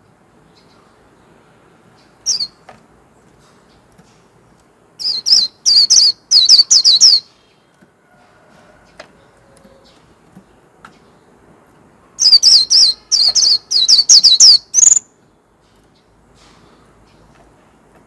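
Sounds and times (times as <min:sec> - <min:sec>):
bird singing high chirps: 0:02.0 - 0:02.6, 0:05.0 - 0:07.6, 0:12.2 - 0:15.2.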